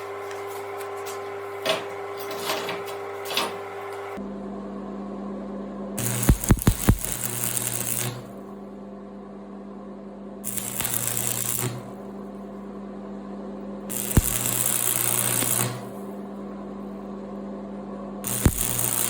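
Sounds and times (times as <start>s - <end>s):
welder humming: 0.0s - 4.2s, 6.0s - 8.6s, 10.4s - 12.3s, 13.8s - 16.6s, 18.2s - 19.0s
welding arc crackling and hissing: 6.0s - 8.4s, 10.5s - 12.0s, 13.9s - 16.0s, 18.2s - 19.0s
electrode tapping on steel: 6.3s - 8.1s, 14.1s - 15.8s.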